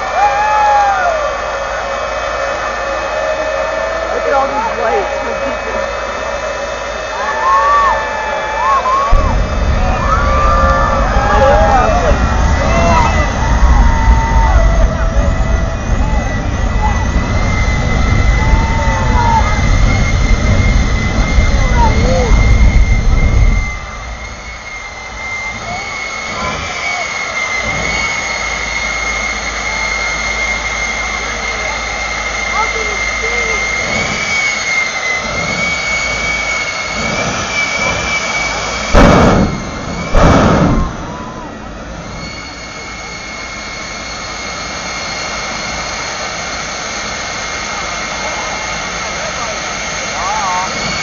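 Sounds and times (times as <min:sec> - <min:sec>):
jet turbine whine: 0:00.0 - 0:51.0
rushing noise: 0:00.0 - 0:51.0
low rumble: 0:01.3 - 0:26.8, 0:35.2 - 0:48.0.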